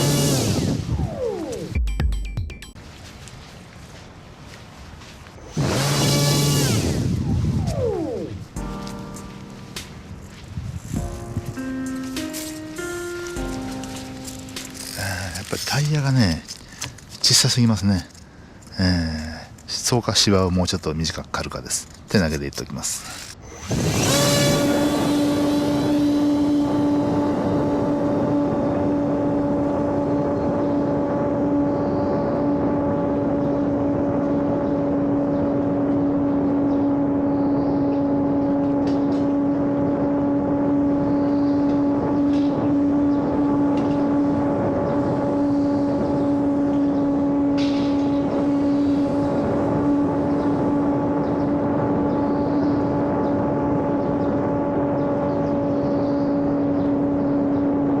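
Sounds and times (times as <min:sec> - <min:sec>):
model airplane motor whine: 0:00.0 - 0:01.8, 0:05.4 - 0:08.9, 0:23.0 - 0:58.0.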